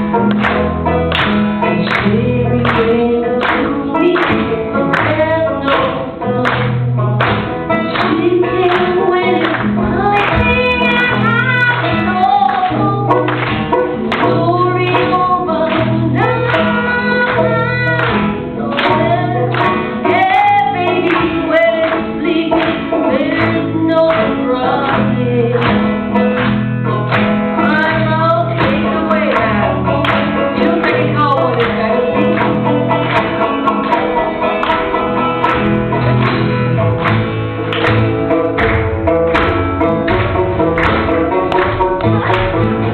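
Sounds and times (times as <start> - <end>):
strummed acoustic guitar: 0.0 - 42.9
person singing: 1.6 - 26.0, 26.9 - 33.1, 39.9 - 42.9.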